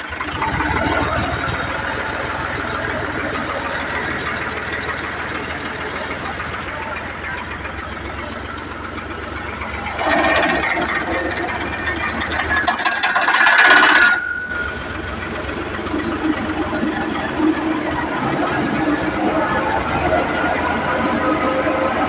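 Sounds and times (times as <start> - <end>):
loud mechanical rattle: 0.0 - 22.0
tractor engine idling: 0.0 - 22.0
high squeal: 9.5 - 15.2.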